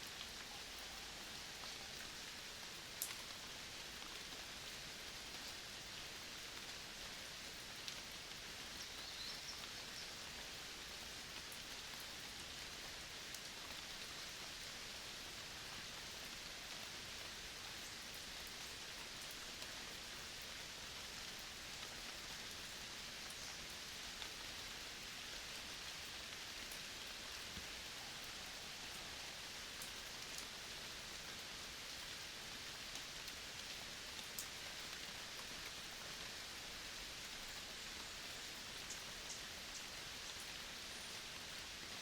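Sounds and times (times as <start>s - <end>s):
forest ambience hiss: 0.0s - 42.0s
faint ticks: 3.0s - 3.3s.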